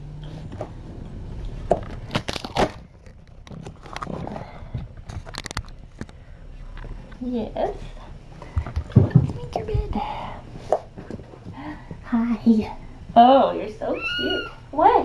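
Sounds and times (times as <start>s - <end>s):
low steady hum: 0.0s - 15.0s
rustling and crinkling: 0.0s - 15.0s
sharp clicks and knocks: 0.2s - 6.2s.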